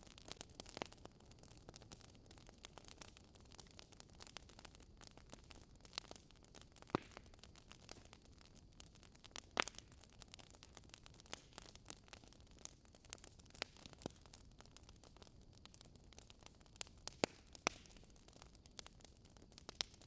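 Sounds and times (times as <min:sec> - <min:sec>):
wood fire crackling in fireplace: 0:00.0 - 0:20.0
loud fire pops: 0:06.8 - 0:08.1.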